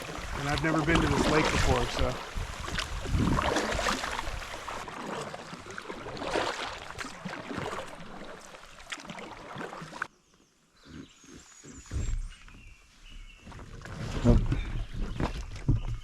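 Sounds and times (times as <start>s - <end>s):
paddle strokes splashing water: 0.0s - 10.1s.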